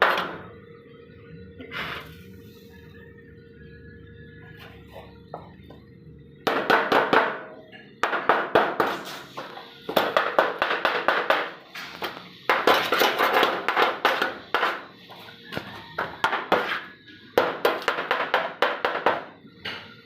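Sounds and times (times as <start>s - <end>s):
arc welding crackling: 8.8s - 15.2s.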